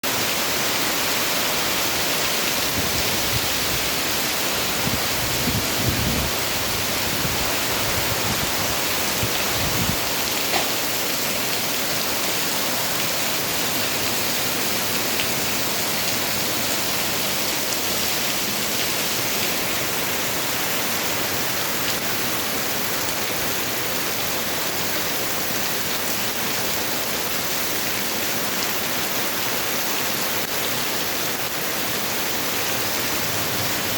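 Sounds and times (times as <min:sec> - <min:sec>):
heavy rain falling: 0:00.0 - 0:33.9
rumbling wind gusts: 0:02.6 - 0:10.2.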